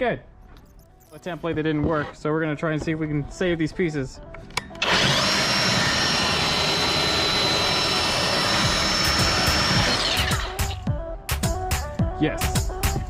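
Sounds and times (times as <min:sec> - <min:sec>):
belt sander whining: 0:04.8 - 0:10.8.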